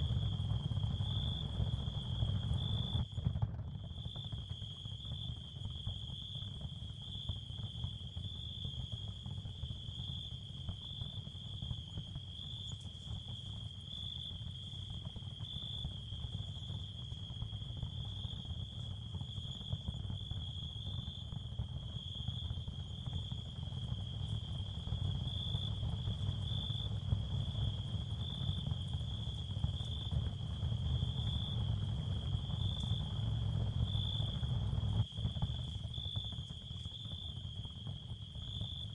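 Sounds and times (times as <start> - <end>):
high cricket-like chirring: 9.9 - 38.9.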